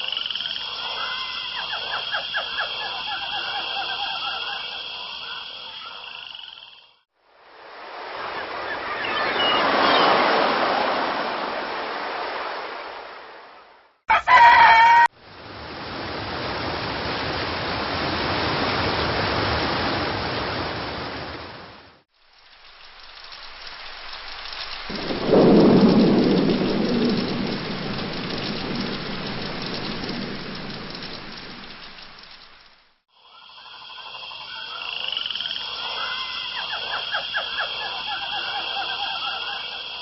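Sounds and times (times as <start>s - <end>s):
crowing call: 0.0s - 6.7s, 14.1s - 15.1s, 33.3s - 40.0s
steady rain: 7.2s - 33.1s
low rumble of thunder: 24.7s - 32.6s.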